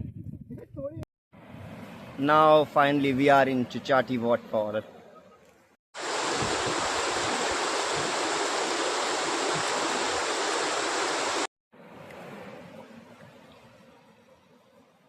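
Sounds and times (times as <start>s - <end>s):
waterfall rushing: 6.0s - 11.5s.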